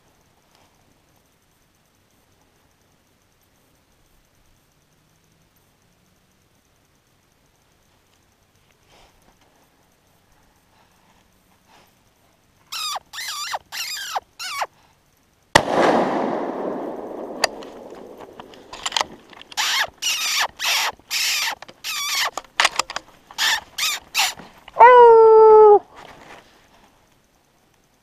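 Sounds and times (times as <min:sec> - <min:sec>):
predator call squeals: 0:12.7 - 0:14.7, 0:18.4 - 0:22.4, 0:23.3 - 0:25.8
rifle shot with echo: 0:15.6 - 0:19.2.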